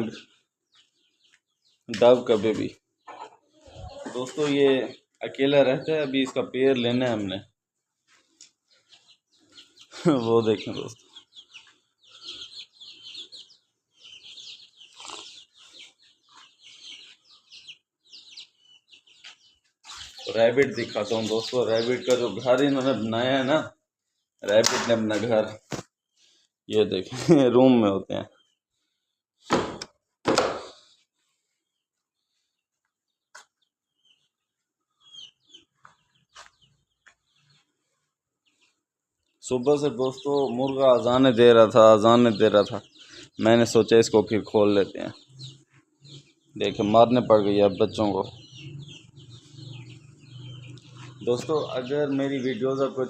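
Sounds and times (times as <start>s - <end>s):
small birds chirping: 0.0s - 53.0s
chicken clucking: 2.2s - 4.9s, 18.4s - 23.6s
short bird calls: 8.9s - 22.9s.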